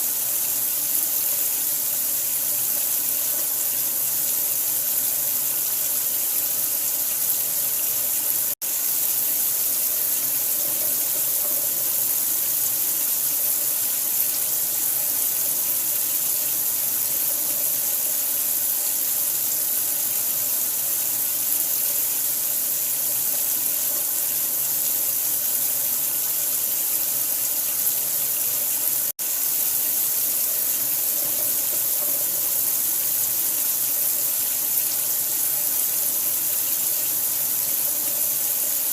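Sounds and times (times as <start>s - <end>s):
running water: 0.0s - 38.9s.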